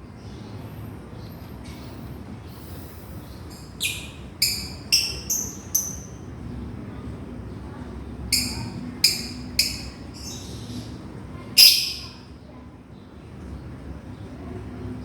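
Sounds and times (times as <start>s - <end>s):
lovebird shrieking calls: 3.6s - 6.2s, 8.3s - 10.8s, 11.6s - 12.2s.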